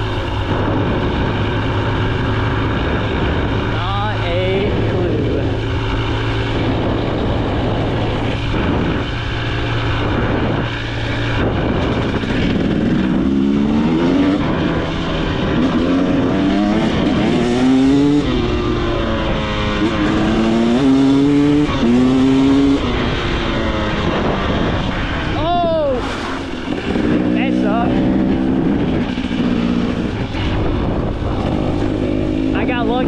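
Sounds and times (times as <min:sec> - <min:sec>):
dirt bike engine revving: 0:00.0 - 0:33.0
steady rushing noise: 0:00.0 - 0:33.0.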